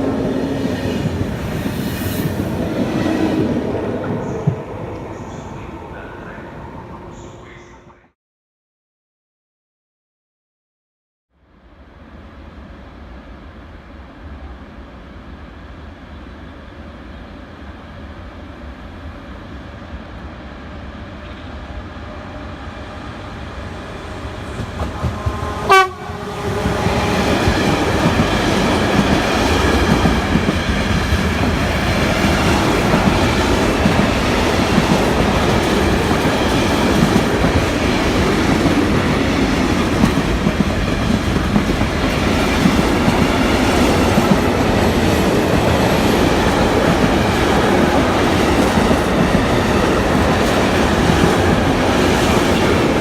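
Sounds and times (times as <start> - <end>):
train passing: 0.0 - 8.0, 11.4 - 53.0
train horn blast: 24.9 - 27.4.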